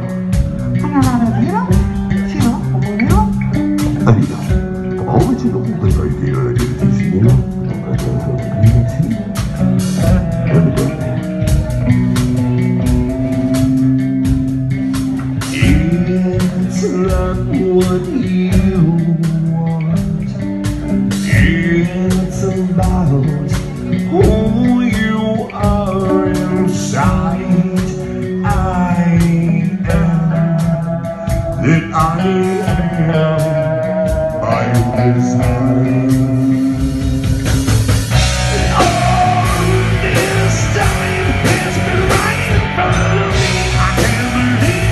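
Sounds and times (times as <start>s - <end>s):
band playing blues-rock: 0.0s - 44.9s
person singing: 10.0s - 11.7s, 21.2s - 37.2s, 38.2s - 44.9s.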